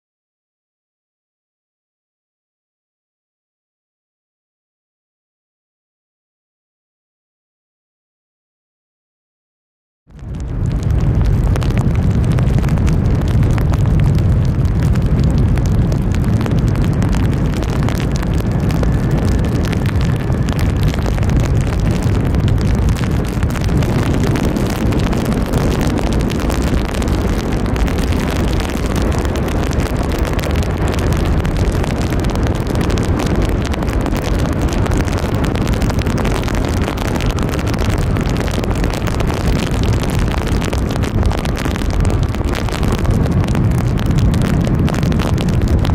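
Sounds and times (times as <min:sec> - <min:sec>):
heavy rain: 0:10.1 - 0:45.9
wind buffeting microphone: 0:10.1 - 0:45.9.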